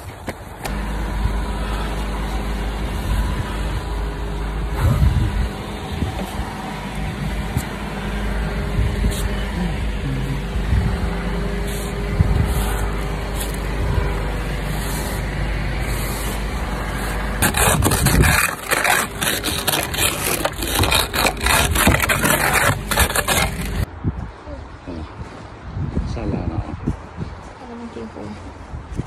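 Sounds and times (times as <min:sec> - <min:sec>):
car engine idling: 0:00.6 - 0:23.9
crunching scraping in snow: 0:11.6 - 0:23.9.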